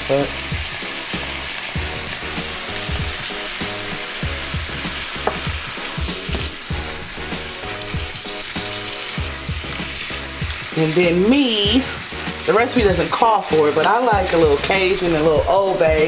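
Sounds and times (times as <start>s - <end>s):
shrimp sizzling in oil: 0.0s - 16.0s
spatula stirring: 5.7s - 15.5s.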